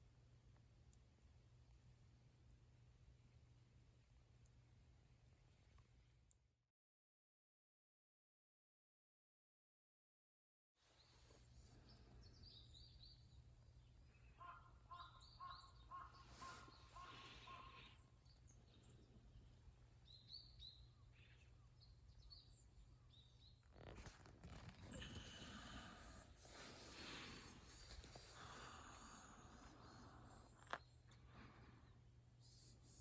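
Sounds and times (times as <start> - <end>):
birds chirping: 11.0 - 23.9
repeated lower bird calls: 14.0 - 19.0.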